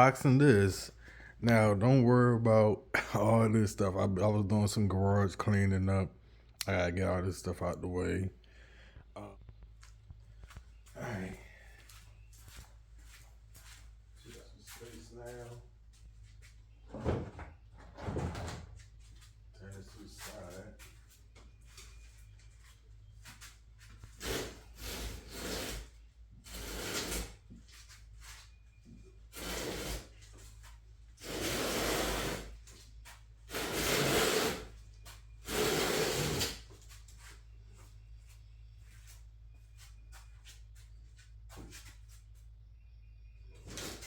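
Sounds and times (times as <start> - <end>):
wooden crate scraping on floor: 31.2 - 32.6.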